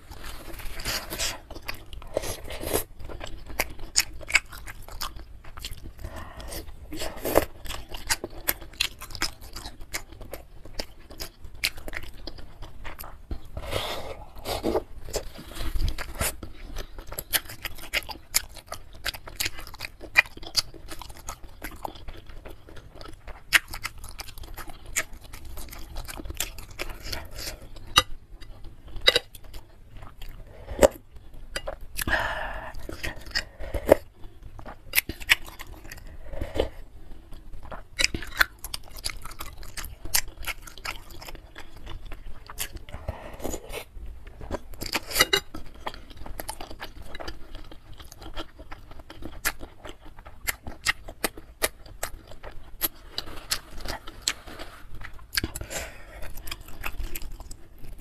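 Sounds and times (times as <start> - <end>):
slurping soup: 13.5 - 16.4.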